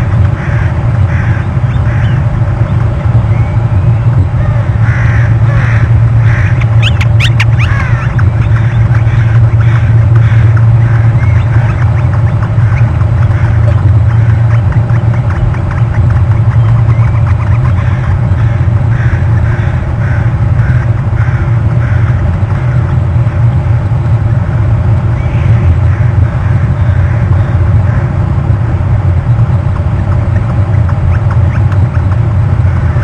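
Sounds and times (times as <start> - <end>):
steady low rumble: 0.0 - 33.0
woodpecker pecking: 5.6 - 20.2.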